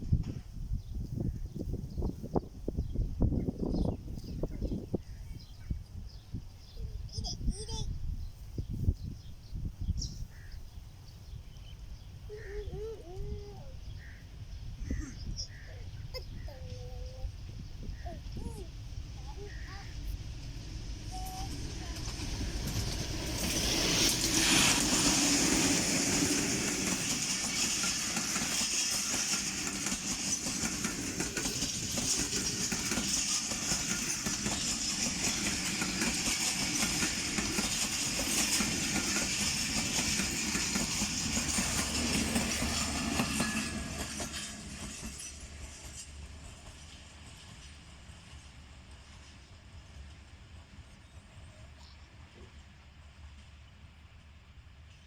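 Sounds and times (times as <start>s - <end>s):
train wheels clattering over rail joints: 21.3s - 48.0s.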